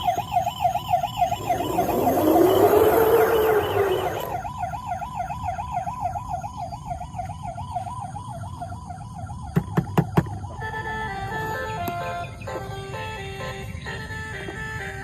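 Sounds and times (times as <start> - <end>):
toy electronic siren warbling: 0.0 - 7.2
swooping tone and hiss: 0.3 - 4.4.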